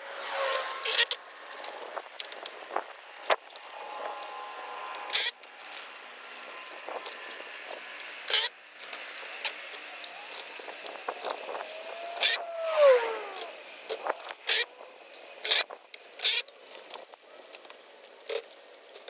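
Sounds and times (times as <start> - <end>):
short falling whine: 10.1 - 13.7
sharp hissy bursts: 10.9 - 13.8.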